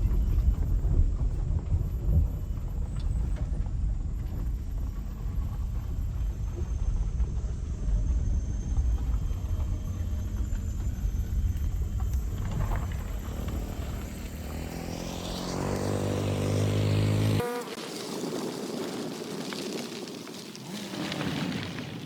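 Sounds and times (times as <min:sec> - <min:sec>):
vehicle engine rumbling: 0:00.0 - 0:17.6.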